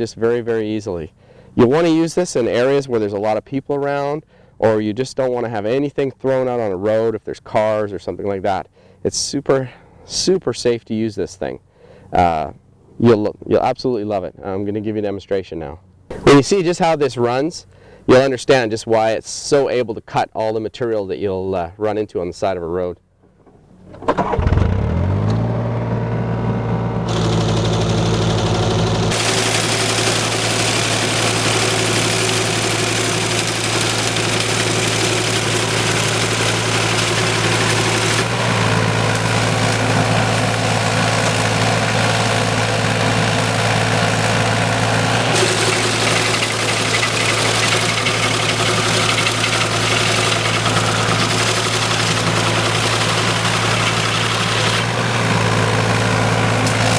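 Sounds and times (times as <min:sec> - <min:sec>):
diesel engine running: 0:23.7 - 0:56.9
hiss of machinery cutting grass: 0:27.1 - 0:56.9.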